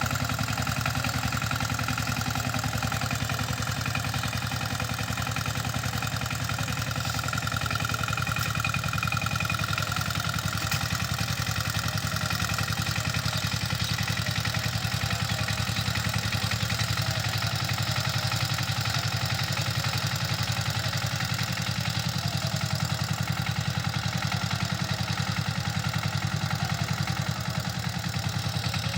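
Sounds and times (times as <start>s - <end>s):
diesel engine chugging: 0.0s - 28.9s.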